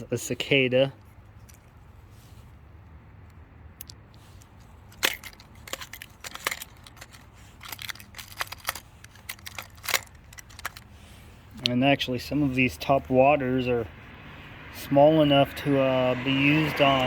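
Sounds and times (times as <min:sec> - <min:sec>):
plastic fishing lures clicking: 0:04.9 - 0:10.9.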